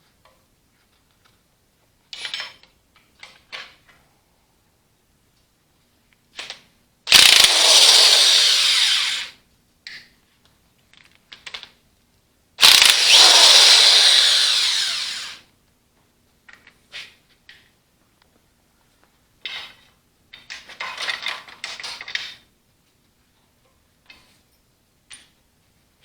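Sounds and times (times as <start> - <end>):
metallic clicks and clanks: 7.1 - 8.2
handheld power tool running: 7.1 - 9.3, 12.6 - 15.4.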